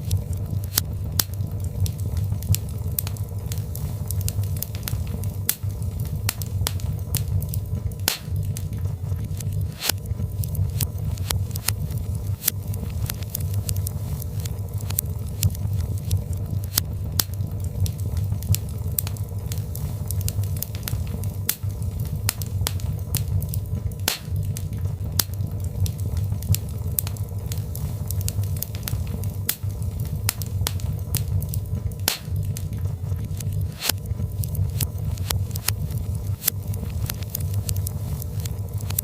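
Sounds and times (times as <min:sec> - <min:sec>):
fire crackling and popping: 0:00.0 - 0:39.0
fire flames rumbling: 0:00.0 - 0:39.0.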